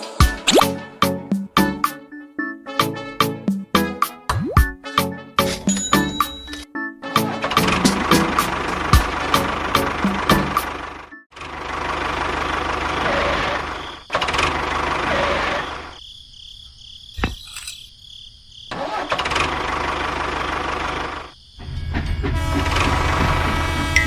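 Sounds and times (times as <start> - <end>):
small engine running: 7.4 - 15.9, 18.8 - 21.4.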